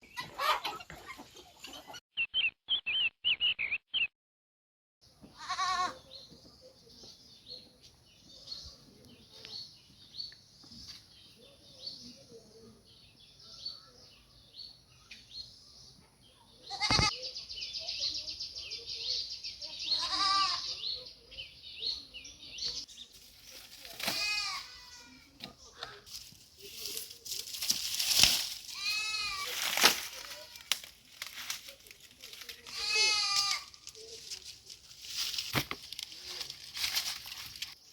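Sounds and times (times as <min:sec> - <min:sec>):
birds chirping: 0:02.2 - 0:04.1, 0:05.0 - 0:34.8
goat bleating: 0:05.4 - 0:06.0, 0:16.7 - 0:17.1, 0:19.9 - 0:20.7, 0:24.0 - 0:25.2, 0:28.7 - 0:29.6, 0:32.7 - 0:33.8.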